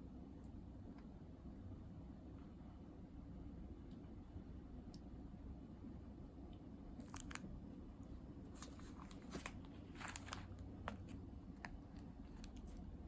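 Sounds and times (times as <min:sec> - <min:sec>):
faint steady hum: 0:00.0 - 0:13.0
coffee beans clicking and rustling: 0:08.6 - 0:12.9.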